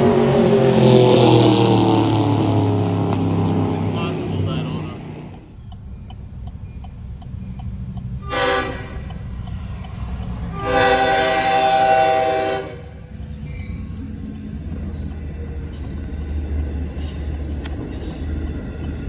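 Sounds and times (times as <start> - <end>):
low rumble of passing train: 0.0 - 19.0
train horn blasts: 8.2 - 9.1, 10.4 - 13.1.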